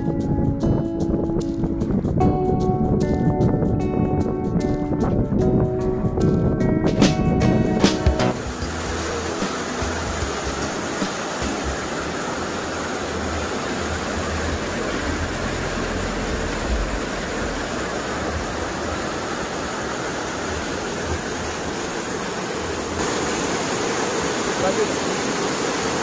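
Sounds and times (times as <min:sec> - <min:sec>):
waterfall rushing: 0:07.5 - 0:26.0.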